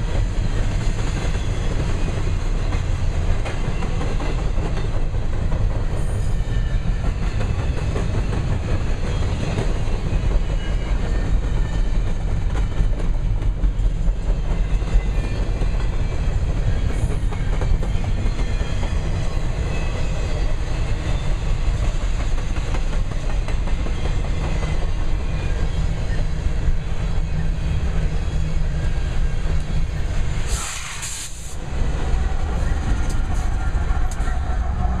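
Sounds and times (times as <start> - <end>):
clickety-clack over rail joints: 0.0 - 35.0
rumble of train wheels: 0.0 - 35.0
short high hiss: 30.5 - 31.6.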